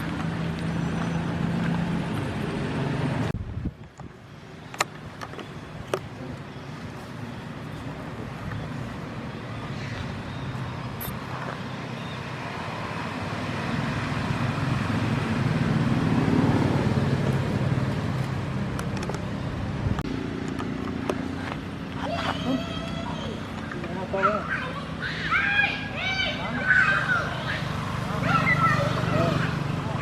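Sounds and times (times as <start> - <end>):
vehicle engine passing by: 7.4 - 22.7, 26.3 - 30.0.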